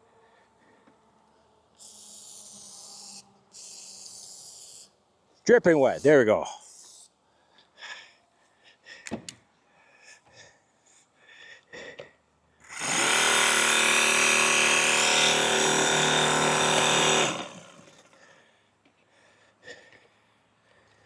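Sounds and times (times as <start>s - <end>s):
small electric chainsaw running: 12.6s - 18.2s.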